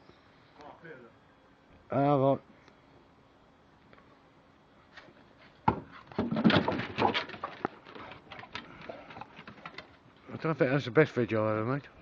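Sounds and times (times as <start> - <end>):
woody knocks and thumps: 5.6 - 9.9.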